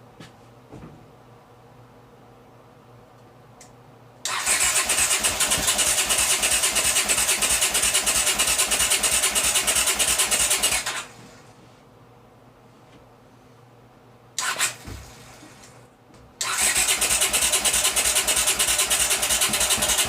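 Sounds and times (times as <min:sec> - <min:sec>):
motorcycle starter cranking: 0:04.3 - 0:11.1, 0:14.4 - 0:14.8, 0:16.4 - 0:20.0.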